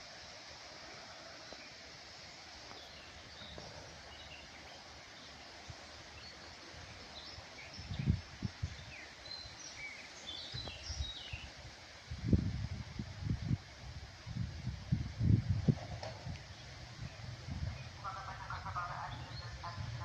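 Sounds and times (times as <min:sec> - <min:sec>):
outdoor hiss: 0:00.0 - 0:20.0
small birds chirping: 0:01.2 - 0:11.6, 0:16.4 - 0:20.0.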